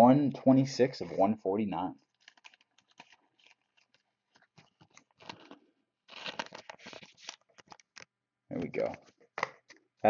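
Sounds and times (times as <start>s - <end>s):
trading cards rustling: 2.1s - 9.8s.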